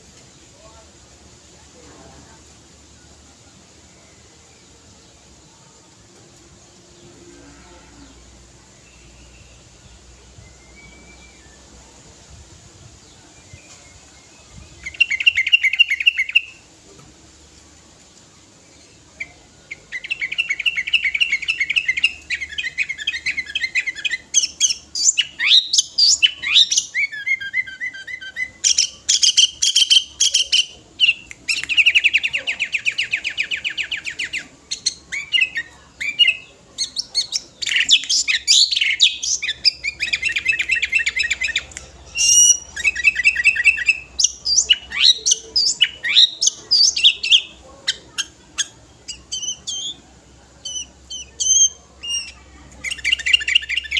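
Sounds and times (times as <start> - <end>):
bulbul singing trills and whistles: 8.8 - 11.8, 13.0 - 16.6, 18.7 - 53.9.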